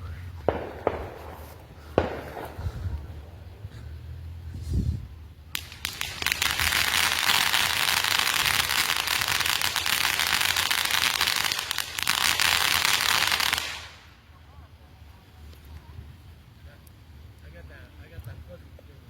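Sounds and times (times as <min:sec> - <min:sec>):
firework crackling: 0:00.0 - 0:14.5.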